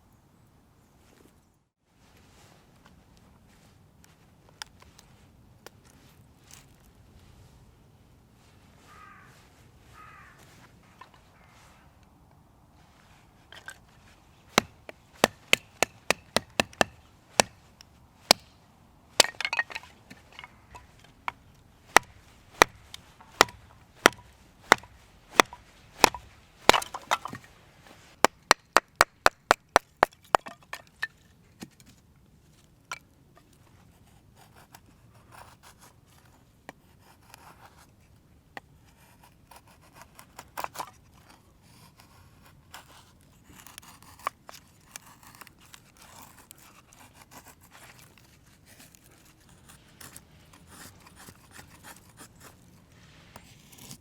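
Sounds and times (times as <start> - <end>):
firewood being chopped: 14.5 - 31.9.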